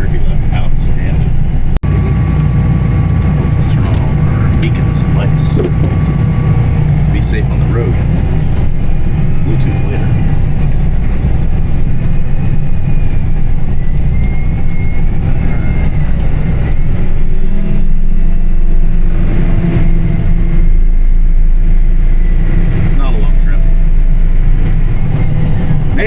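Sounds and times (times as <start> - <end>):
tractor engine droning: 0.0 - 26.0.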